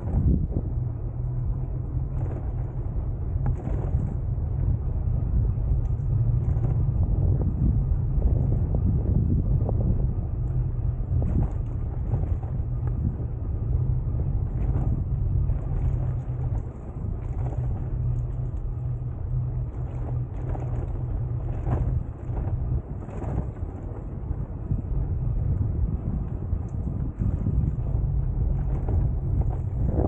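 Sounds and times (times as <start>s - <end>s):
bicycle tyres on path: 0.0s - 30.0s
wind on microphone: 0.0s - 30.0s
bicycle knocks and rattles: 2.1s - 4.7s, 11.1s - 13.3s, 19.7s - 25.1s, 26.0s - 30.0s.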